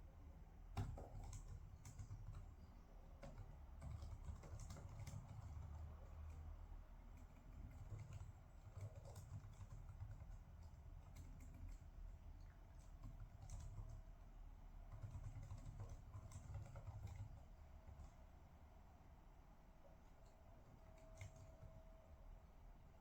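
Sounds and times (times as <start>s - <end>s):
low steady hum: 0.0s - 23.0s
typing on computer keyboard: 0.8s - 14.3s, 14.9s - 18.2s, 20.6s - 22.0s.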